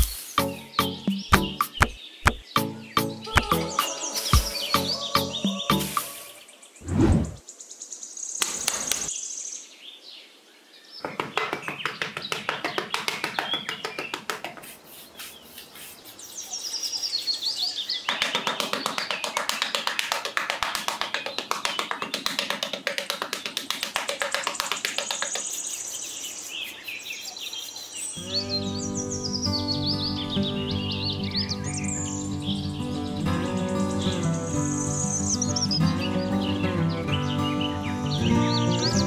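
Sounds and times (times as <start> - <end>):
birds chirping: 0.0 - 10.0, 10.8 - 39.0
trowel scraping sand: 14.6 - 18.1, 25.0 - 28.2.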